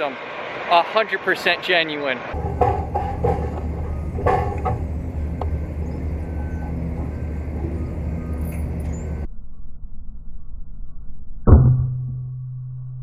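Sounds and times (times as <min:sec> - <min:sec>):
low mechanical hum: 0:02.3 - 0:09.3.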